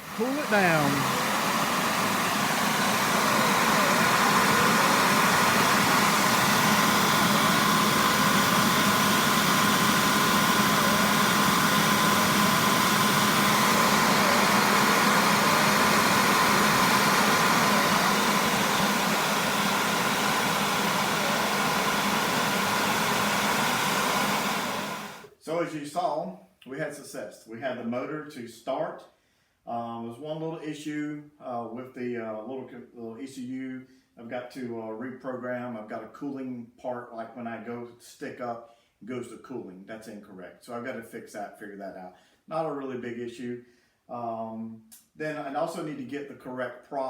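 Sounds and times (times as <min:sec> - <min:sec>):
turbine whirring with whine: 0:00.0 - 0:25.3.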